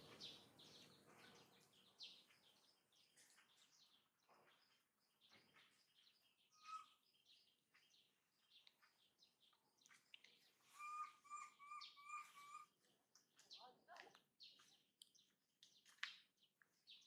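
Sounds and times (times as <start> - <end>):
high bird chirps: 5.3 - 7.5, 9.8 - 12.9
whistled bird note: 10.7 - 12.7.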